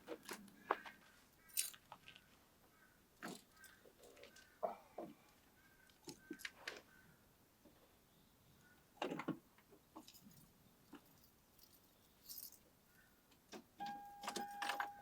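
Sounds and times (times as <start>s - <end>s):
electronic beep tone: 13.8s - 15.0s.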